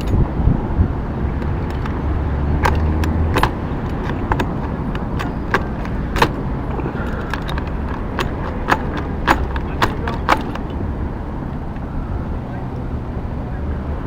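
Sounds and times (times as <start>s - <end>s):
metallic clicks of hand tools: 1.4s - 10.8s.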